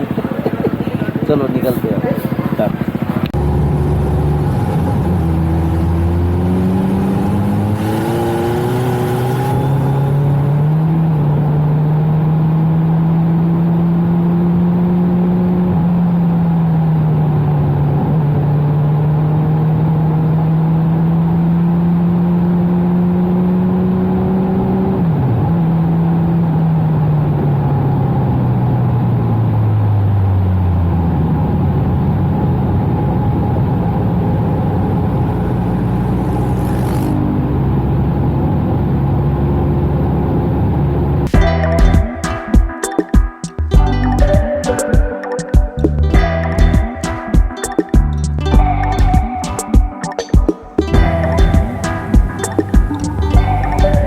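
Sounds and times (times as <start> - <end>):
motorcycle engine accelerating: 0.0 - 42.8, 45.7 - 54.0.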